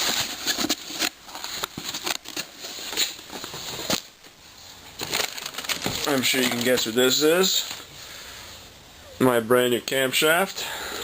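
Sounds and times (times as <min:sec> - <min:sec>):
packaging crinkling and rustling: 0:00.0 - 0:07.9.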